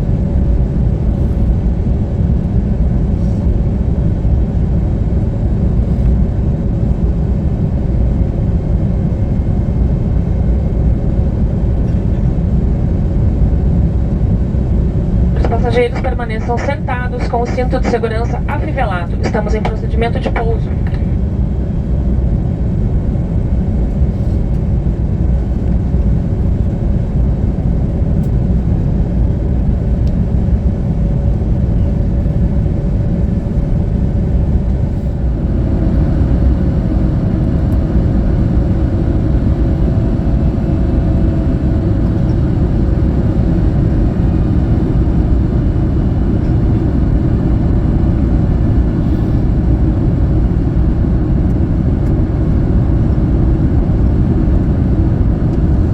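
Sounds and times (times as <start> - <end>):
airplane cabin rumble: 0.0 - 55.9
faint hum: 10.9 - 27.6, 29.6 - 55.9.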